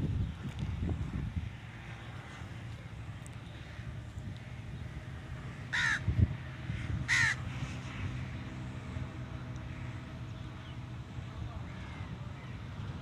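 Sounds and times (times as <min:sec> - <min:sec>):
low engine hum: 0:00.0 - 0:13.0
crow cawing: 0:05.7 - 0:06.0, 0:06.7 - 0:07.4.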